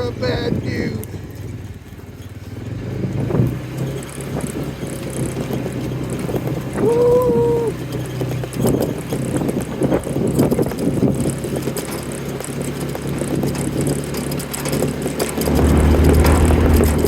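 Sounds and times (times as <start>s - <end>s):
farm vehicle engine running: 0.0s - 17.0s.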